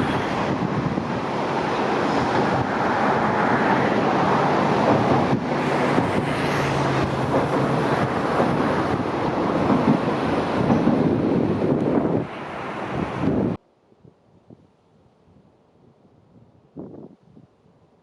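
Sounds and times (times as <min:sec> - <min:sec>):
railcar engine humming: 0:00.0 - 0:13.6
wind buffeting microphone: 0:00.0 - 0:18.0.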